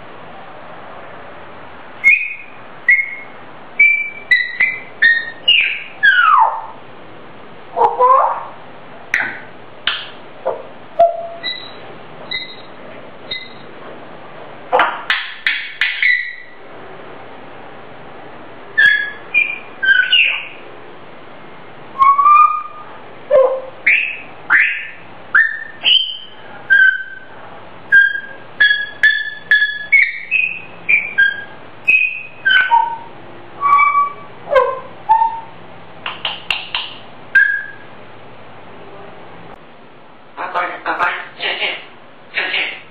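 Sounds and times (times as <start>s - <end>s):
parrot whistling: 2.0s - 6.8s, 7.8s - 8.6s, 9.2s - 13.7s, 14.8s - 16.6s, 18.8s - 20.6s, 22.0s - 27.3s, 27.9s - 35.5s, 36.2s - 37.9s.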